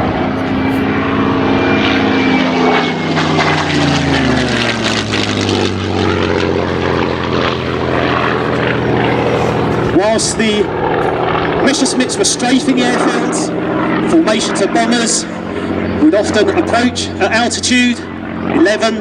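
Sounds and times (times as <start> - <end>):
propeller plane engine passing low: 0.0 - 19.0.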